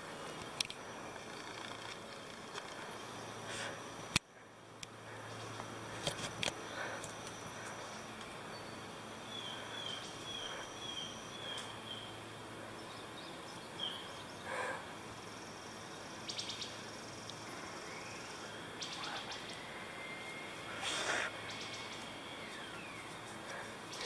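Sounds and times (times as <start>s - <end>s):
bird chirping: 0.0s - 2.8s, 7.6s - 14.8s, 15.7s - 24.0s
insect drone: 0.0s - 24.0s.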